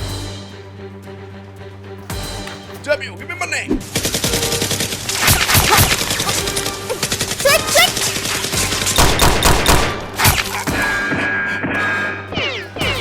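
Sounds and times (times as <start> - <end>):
background music: 0.0 - 13.0
rapid gunfire bursts: 3.8 - 10.6.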